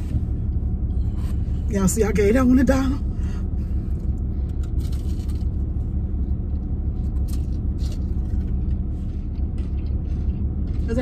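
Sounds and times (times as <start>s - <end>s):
idling engine rumble: 0.0s - 11.0s
crisp food crunches: 4.6s - 5.8s.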